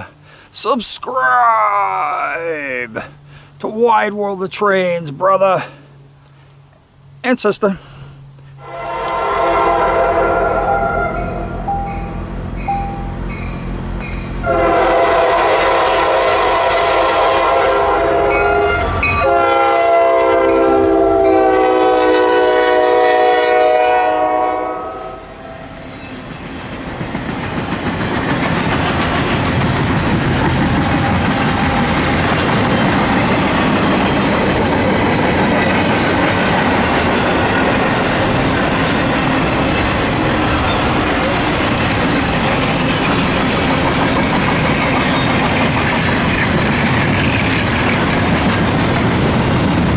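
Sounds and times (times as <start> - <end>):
locomotive chord horn blasts: 8.6 - 11.7, 14.4 - 25.8
train wheels clattering on rails: 26.2 - 49.9.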